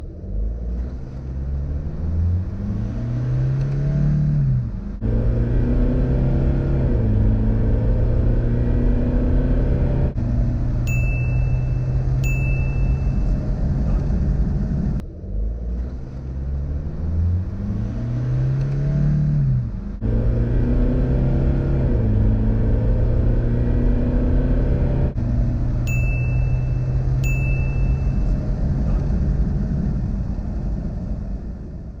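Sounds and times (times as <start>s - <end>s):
diesel engine idling and revving: 0.0s - 32.0s
short high beeps: 10.9s - 13.3s, 25.9s - 28.3s.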